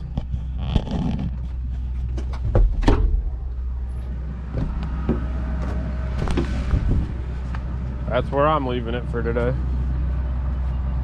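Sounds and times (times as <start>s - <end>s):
short knocks and clunks: 2.1s - 3.4s
excavator diesel engine idling: 3.1s - 11.0s.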